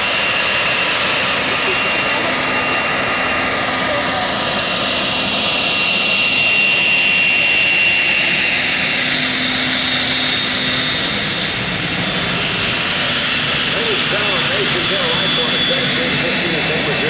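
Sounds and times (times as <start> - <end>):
jet engines roaring with whine: 0.0 - 17.0.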